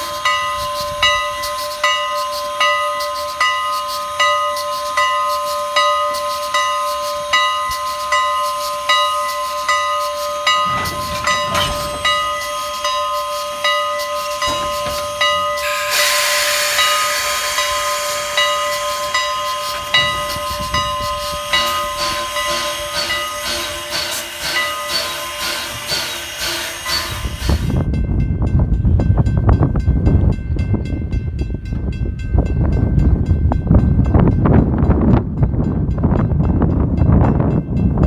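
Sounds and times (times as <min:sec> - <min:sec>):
steam hissing: 0:00.0 - 0:27.9
lower-pitched bell ringing: 0:06.6 - 0:26.2
bell ringing: 0:08.2 - 0:15.8.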